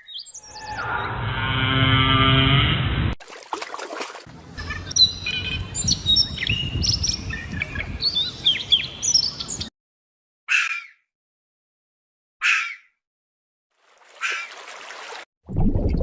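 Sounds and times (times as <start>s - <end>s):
birds chirping: 0.0s - 1.2s, 4.4s - 9.7s.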